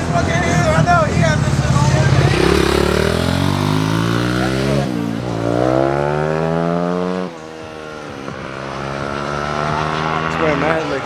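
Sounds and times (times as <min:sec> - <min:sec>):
vehicle engine accelerating: 0:00.0 - 0:11.0.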